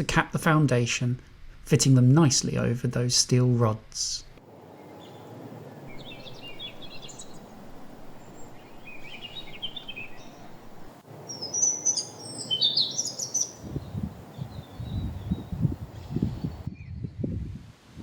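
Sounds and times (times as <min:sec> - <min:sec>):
outdoor background noise: 0:00.0 - 0:18.0
songbirds twittering: 0:04.2 - 0:17.3.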